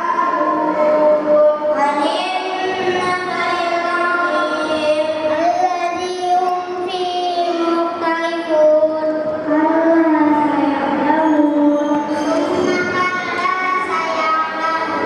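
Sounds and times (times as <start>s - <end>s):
children singing: 0.0s - 7.9s, 10.9s - 15.0s.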